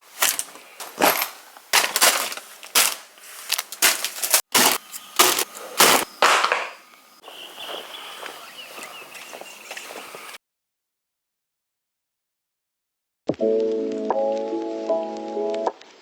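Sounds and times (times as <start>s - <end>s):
sharp crackling bursts: 1.4s - 6.8s.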